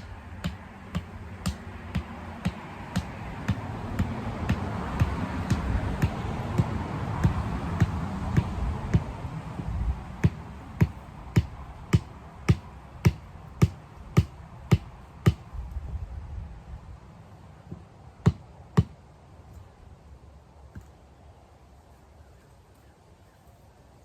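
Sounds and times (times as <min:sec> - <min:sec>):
tool knocking on wood: 0:00.0 - 0:09.1, 0:10.2 - 0:15.4.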